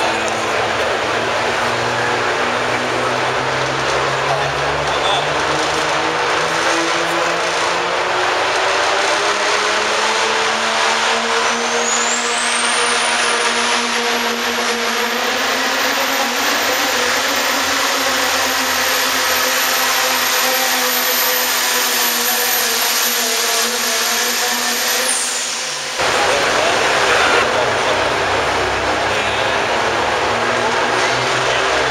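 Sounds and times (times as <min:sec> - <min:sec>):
diesel truck at full throttle: 0:00.0 - 0:31.9
high engine whine: 0:00.0 - 0:31.9.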